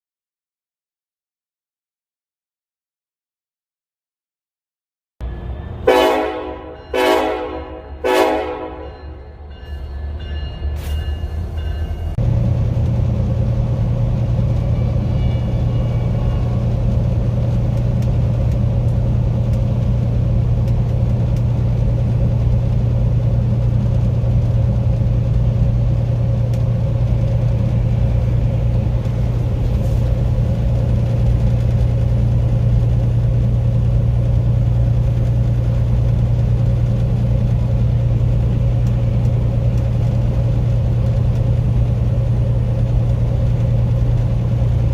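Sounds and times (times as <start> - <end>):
low diesel train drone: 5.2 - 44.9
locomotive horn blasts: 5.4 - 9.2.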